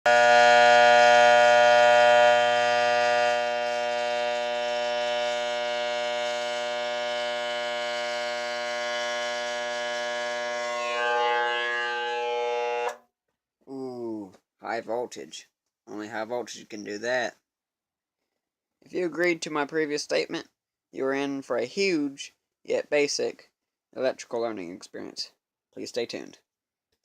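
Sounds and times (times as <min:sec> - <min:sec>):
transformer buzzing: 0:00.1 - 0:13.0.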